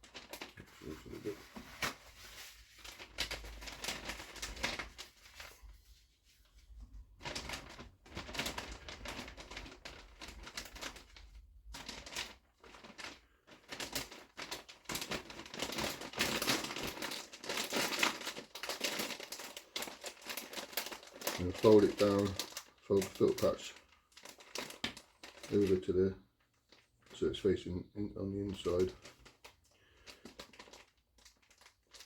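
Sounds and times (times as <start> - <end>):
plastic bag crinkling: 0.0 - 5.8, 7.0 - 32.0.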